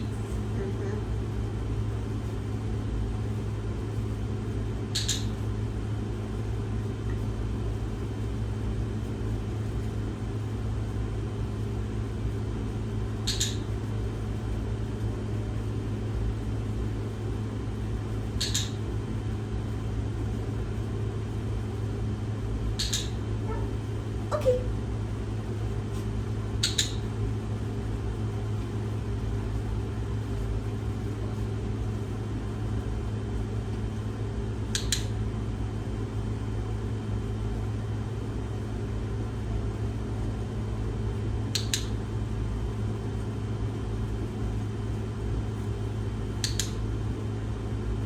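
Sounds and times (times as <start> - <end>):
low fan hum: 0.0 - 48.0
sharp double clicks: 5.0 - 5.3, 13.2 - 13.7, 18.4 - 18.8, 22.8 - 23.2, 26.6 - 27.0, 46.4 - 46.8.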